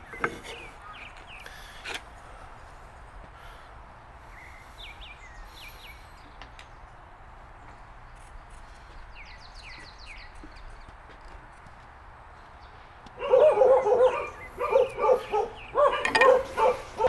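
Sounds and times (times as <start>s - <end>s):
birds chirping: 12.6s - 17.0s.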